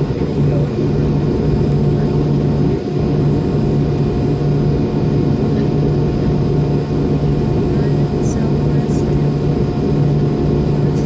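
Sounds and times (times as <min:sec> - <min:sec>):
jet engines rumbling in cabin: 0:00.0 - 0:11.0.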